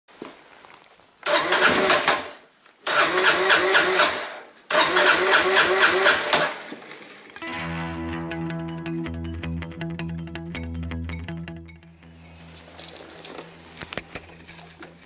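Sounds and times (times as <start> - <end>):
motorcycle engine cranking: 1.3 - 2.3, 2.9 - 6.6.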